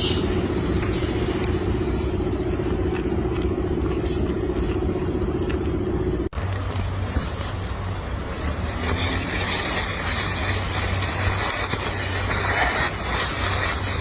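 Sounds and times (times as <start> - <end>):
motor humming: 0.0 - 14.0
rumbling noise: 0.0 - 14.0.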